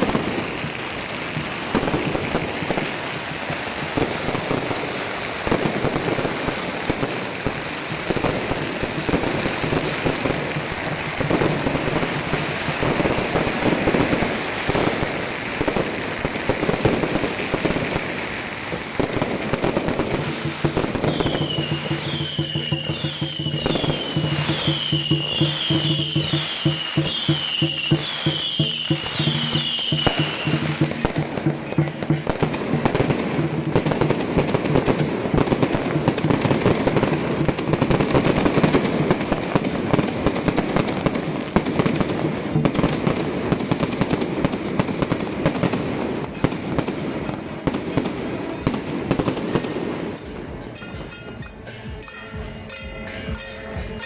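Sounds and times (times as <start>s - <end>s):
fireworks crackling bangs: 0.0s - 54.0s.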